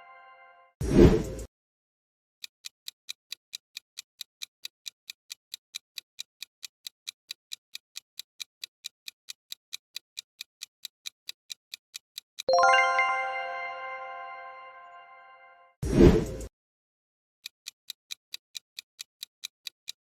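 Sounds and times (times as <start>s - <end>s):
countdown timer ticking: 12.5s - 15.4s.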